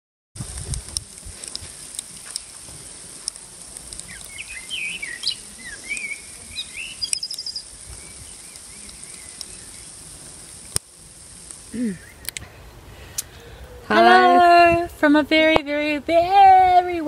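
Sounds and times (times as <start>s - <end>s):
faint steady hiss: 0.4s - 17.0s
songbird warbling: 4.0s - 10.1s
light ticks: 8.5s - 9.5s.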